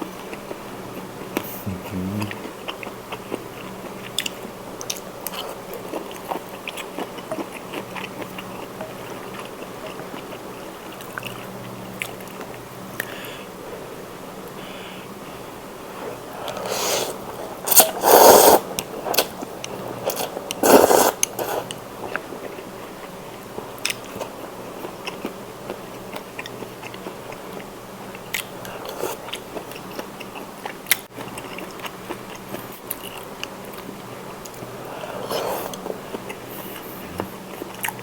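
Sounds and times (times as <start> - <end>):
chewing with mouth clicks: 0.2 - 13.2, 21.2 - 38.0
close-miked noodle eating: 0.3 - 12.6, 15.9 - 23.2.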